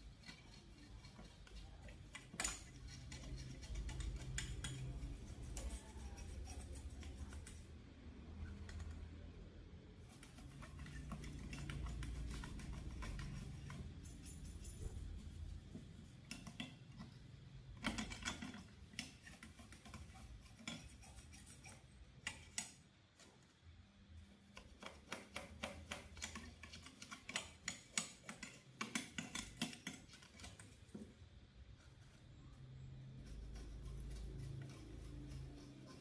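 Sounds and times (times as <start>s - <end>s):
small tools clicking and tapping: 0.0s - 7.7s, 10.1s - 23.3s, 24.5s - 31.1s.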